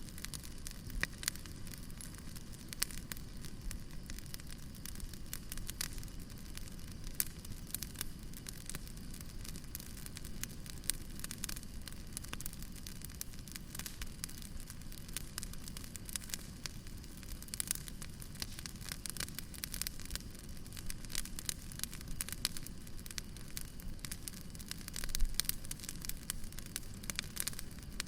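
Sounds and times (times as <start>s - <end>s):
firewood crackling and popping: 0.0s - 28.0s
low rumble of fire: 0.0s - 28.0s.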